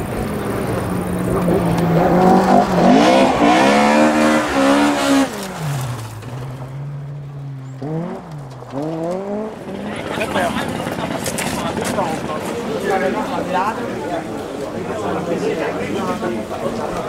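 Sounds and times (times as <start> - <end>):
rally car engine revving: 0.0 - 13.4.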